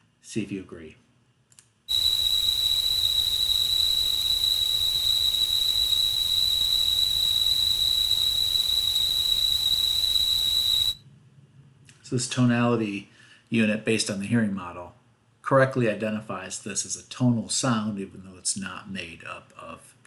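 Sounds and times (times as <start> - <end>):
background hiss: 1.9 - 11.0
steady whistle-like tone: 1.9 - 11.0.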